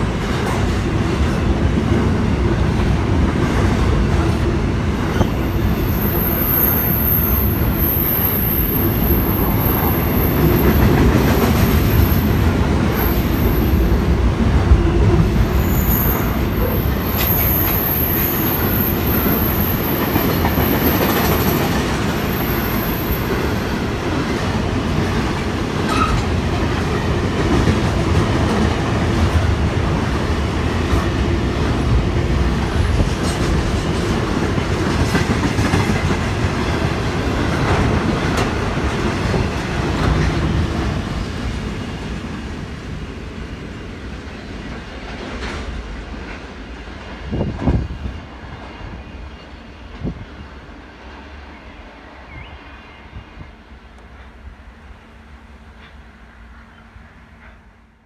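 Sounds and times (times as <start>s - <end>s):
wheels rumbling on rail: 0.0s - 58.0s
high-pitched train squeal: 5.0s - 13.9s, 14.8s - 24.0s, 25.9s - 26.2s.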